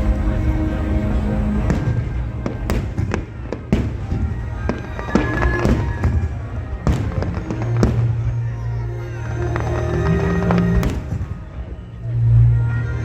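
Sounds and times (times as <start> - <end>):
fireworks bangs: 1.5 - 11.9.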